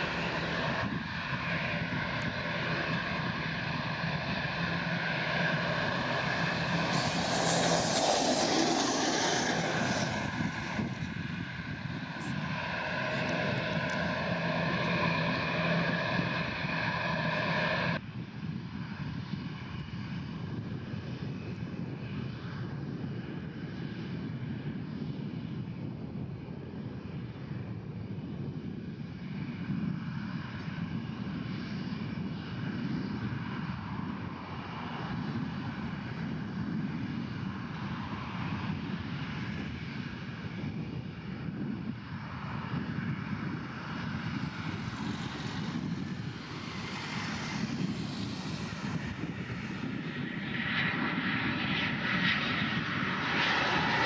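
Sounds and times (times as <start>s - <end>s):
jet engines rushing: 0.0s - 18.0s, 29.4s - 54.0s
jet whine: 0.0s - 18.3s, 29.9s - 54.0s.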